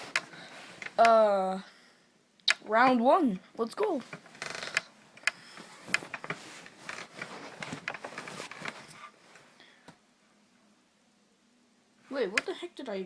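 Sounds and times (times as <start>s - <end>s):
stuffed toys rustling and knocking: 4.0s - 9.2s.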